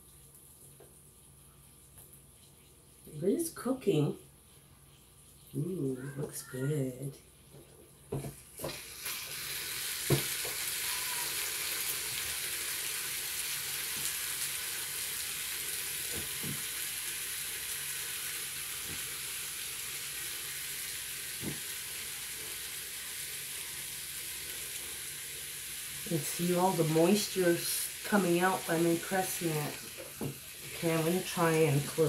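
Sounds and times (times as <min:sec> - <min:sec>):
meat sizzling in waffle maker: 0:08.3 - 0:32.0.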